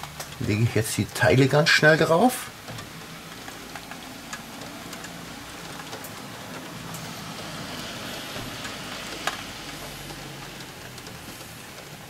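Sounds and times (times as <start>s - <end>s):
rain pattering on a window: 0.0s - 12.0s
meat sizzling on a hot grill: 2.9s - 11.7s.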